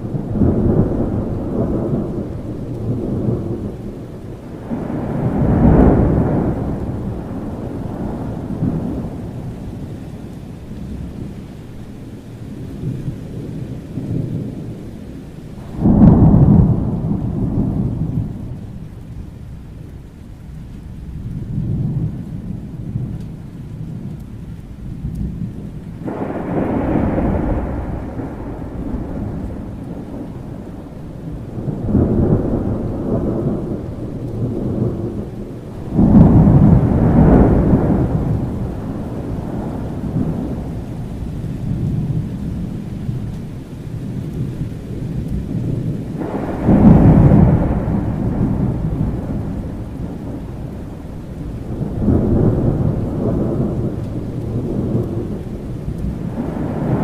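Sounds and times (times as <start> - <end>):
thunder rolling: 0.0 - 11.4, 15.5 - 19.7, 20.8 - 57.0
steady rain: 0.0 - 57.0.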